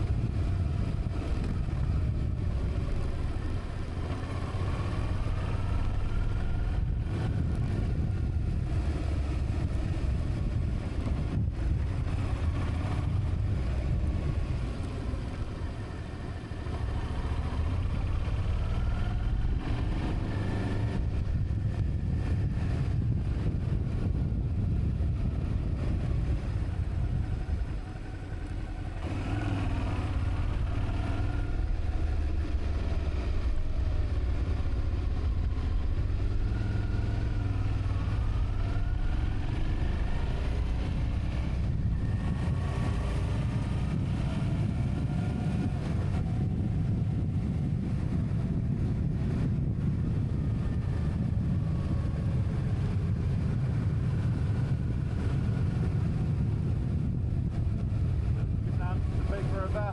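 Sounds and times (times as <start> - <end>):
motorcycle engine running: 0.0 - 59.9
wind noise: 0.0 - 59.9.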